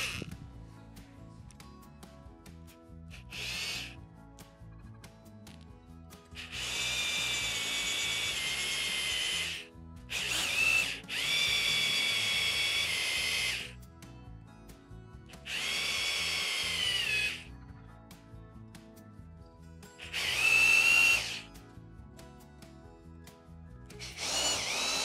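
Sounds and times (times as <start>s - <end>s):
electric drill boring into steel: 0.0s - 0.3s, 3.1s - 4.0s, 6.3s - 13.8s, 15.4s - 17.5s, 20.0s - 21.5s, 24.0s - 25.0s.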